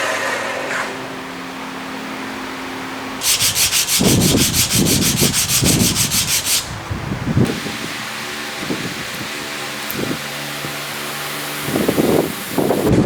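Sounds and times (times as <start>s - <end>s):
hand tool sanding wood: 3.2s - 6.9s.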